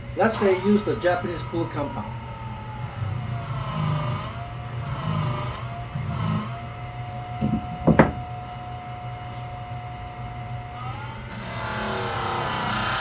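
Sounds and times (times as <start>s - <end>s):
low motor hum: 7.2s - 8.4s
scraping knocks: 7.4s - 8.4s.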